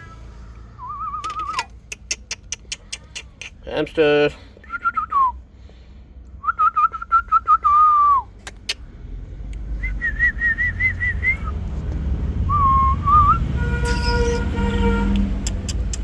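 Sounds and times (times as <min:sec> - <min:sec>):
low vehicle rumble: 0:00.0 - 0:01.9, 0:04.5 - 0:16.0
person whistling: 0:00.8 - 0:01.7, 0:06.4 - 0:08.3, 0:09.8 - 0:11.6, 0:12.5 - 0:14.4.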